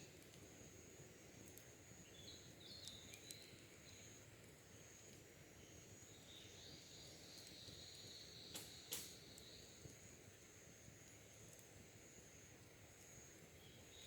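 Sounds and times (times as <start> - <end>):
campfire embers crackling: 0.0 - 14.0
faint birds chirping: 2.0 - 9.8, 13.4 - 14.0.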